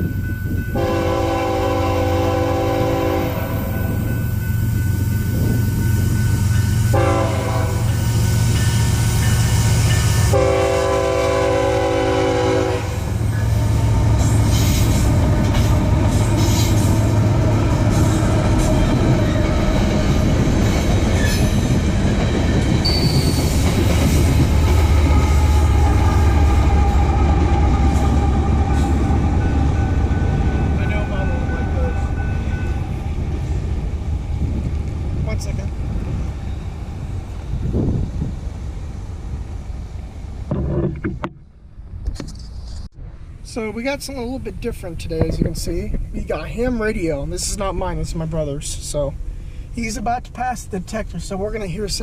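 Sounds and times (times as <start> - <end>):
train rumbling: 0.0 - 52.0
locomotive air horn blasts: 0.8 - 3.8, 6.9 - 7.9, 10.3 - 13.2.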